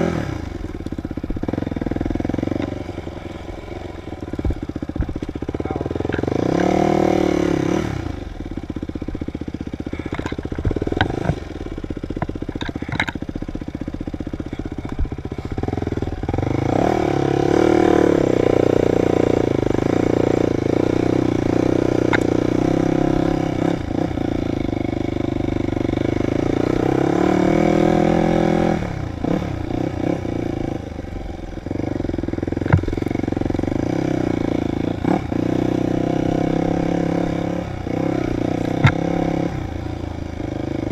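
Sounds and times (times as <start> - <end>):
dirt bike engine revving: 0.0 - 40.9
sharp knocks and clatter: 32.6 - 33.2, 38.7 - 39.3.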